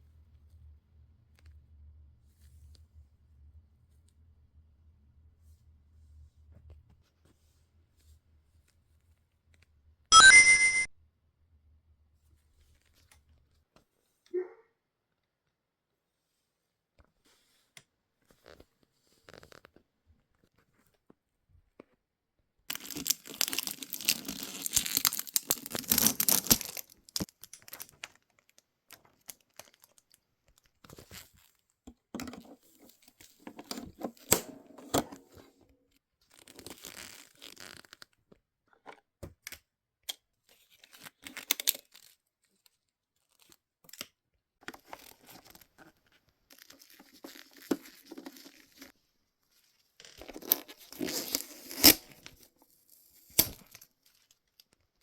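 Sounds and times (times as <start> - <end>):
packaging tearing and crinkling: 22.7 - 28.5, 29.2 - 30.1, 50.2 - 52.5.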